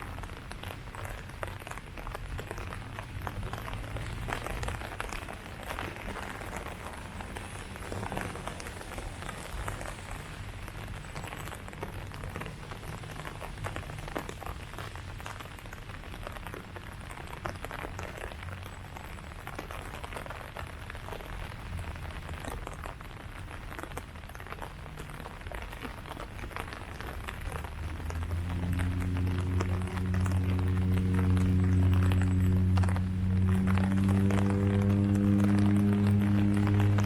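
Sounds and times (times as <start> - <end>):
rain falling on leaves: 0.0 - 37.0
low rumble: 27.4 - 37.0.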